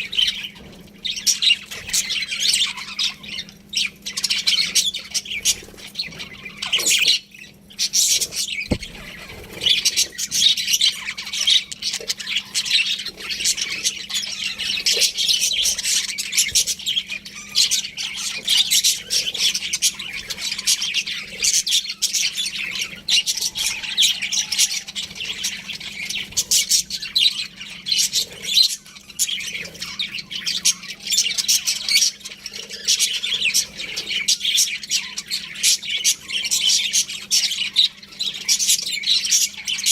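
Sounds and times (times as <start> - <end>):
budgerigars chirping: 0.0 - 39.9
faint steady hum: 0.0 - 39.9.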